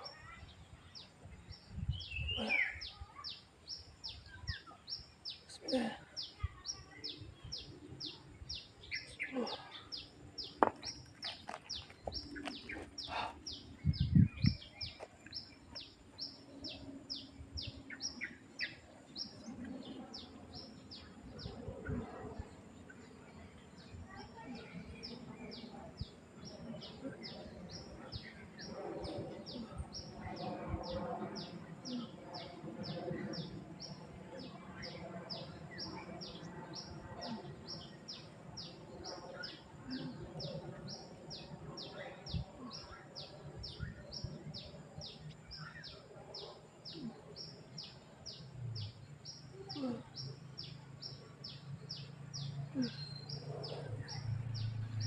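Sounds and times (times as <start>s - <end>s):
faint distant voices: 0.0s - 55.0s
bird chirping: 31.3s - 55.0s.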